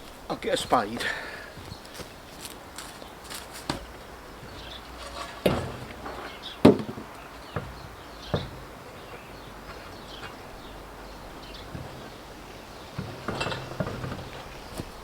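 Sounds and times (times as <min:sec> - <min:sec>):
sharp knocks and clanks: 0:03.6 - 0:15.0.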